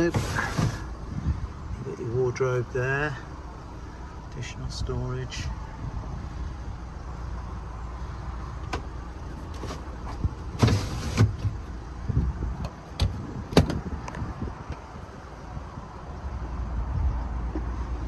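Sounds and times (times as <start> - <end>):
sliding door rush: 0.0 - 0.9, 9.4 - 11.8
low steady rumble: 0.0 - 18.0
campervan door latch clicks and knocks: 12.5 - 14.8.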